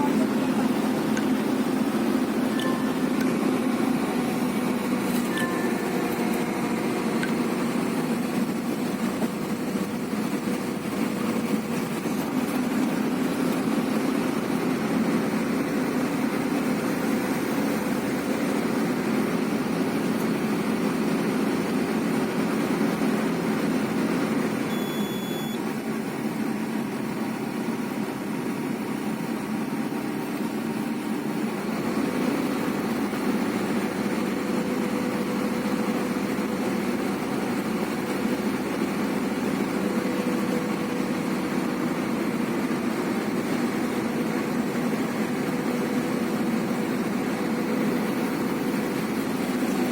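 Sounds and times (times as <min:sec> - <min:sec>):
diesel engine idling: 0:00.0 - 0:49.9
short high beep: 0:02.5 - 0:03.2, 0:05.3 - 0:05.9, 0:24.7 - 0:25.6.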